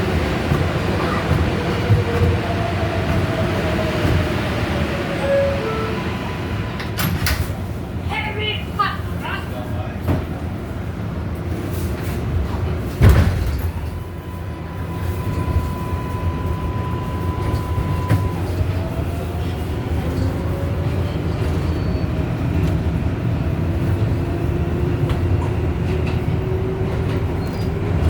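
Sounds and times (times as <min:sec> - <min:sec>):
subway train wheels rumbling: 0:00.0 - 0:28.0
high tone: 0:05.2 - 0:07.0.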